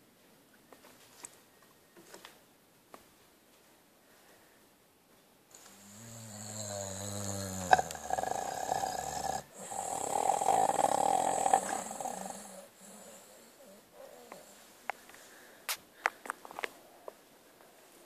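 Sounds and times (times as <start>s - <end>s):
dog snoring: 5.5s - 14.6s.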